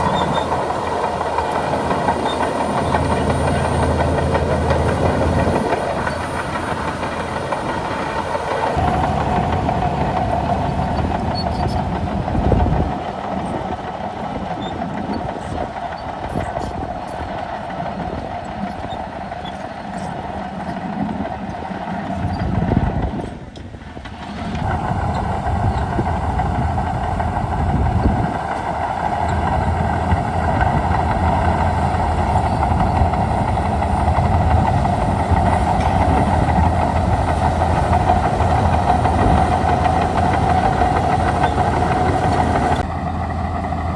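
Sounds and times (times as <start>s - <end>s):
machine whine: 0.0s - 13.0s, 24.6s - 43.9s
bulldozer diesel engine running: 0.0s - 43.9s
tracks clattering: 0.0s - 43.9s.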